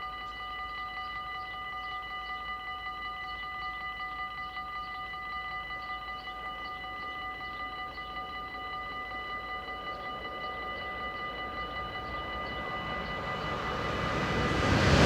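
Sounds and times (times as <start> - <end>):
level-crossing warning bell ringing: 0.0 - 15.0.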